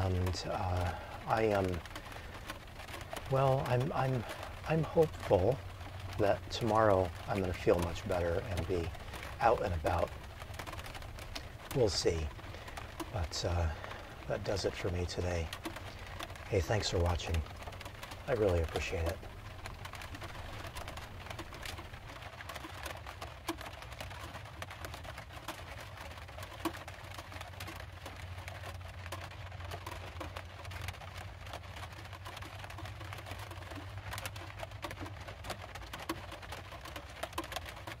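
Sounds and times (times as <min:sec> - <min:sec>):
low steady hum: 0:00.0 - 0:25.6
rain tapping on metal roof: 0:00.0 - 0:38.0.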